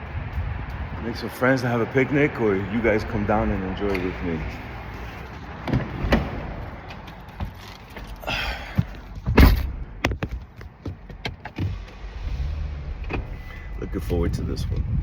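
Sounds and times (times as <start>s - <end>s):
vehicle door thud: 5.6s - 6.7s, 8.8s - 10.4s.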